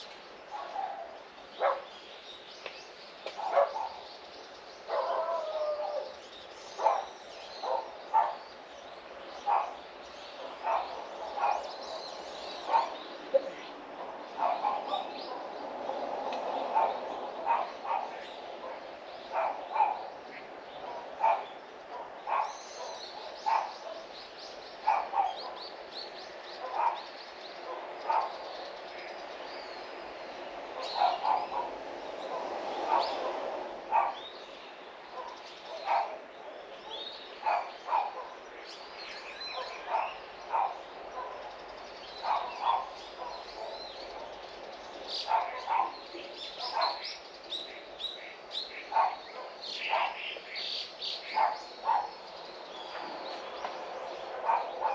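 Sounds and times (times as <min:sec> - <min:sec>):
small birds chirping: 0:00.0 - 0:54.9
dog barking: 0:00.5 - 0:01.9, 0:03.3 - 0:04.0, 0:04.9 - 0:06.0, 0:06.8 - 0:08.4, 0:09.4 - 0:09.8, 0:10.4 - 0:15.5, 0:16.7 - 0:20.0, 0:20.8 - 0:24.1, 0:24.8 - 0:25.6, 0:26.6 - 0:28.4, 0:30.8 - 0:33.3, 0:33.9 - 0:34.3, 0:35.1 - 0:36.3, 0:36.9 - 0:38.4, 0:39.4 - 0:41.5, 0:42.2 - 0:44.4, 0:45.2 - 0:47.1, 0:48.9 - 0:50.2, 0:51.3 - 0:52.2, 0:54.2 - 0:54.9.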